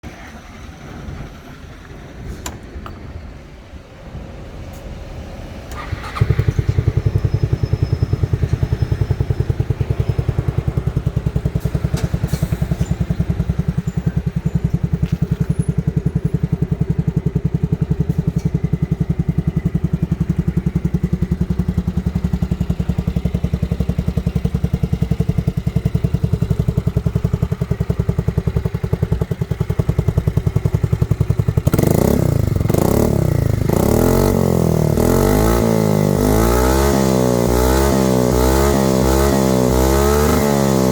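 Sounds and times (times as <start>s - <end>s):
scooter engine idling and revving: 5.0s - 40.9s.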